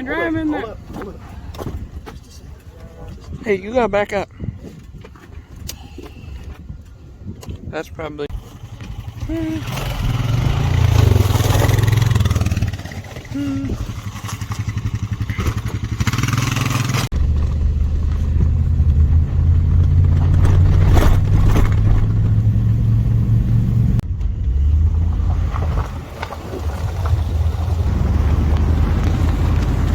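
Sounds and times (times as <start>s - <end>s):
vehicle engine running: 8.3s - 29.9s.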